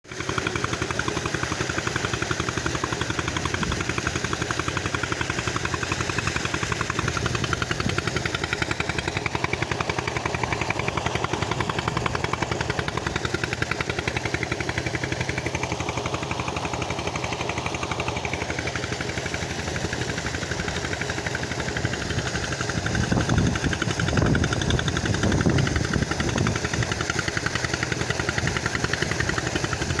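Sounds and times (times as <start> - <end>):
engine chugging: 0.0 - 30.0.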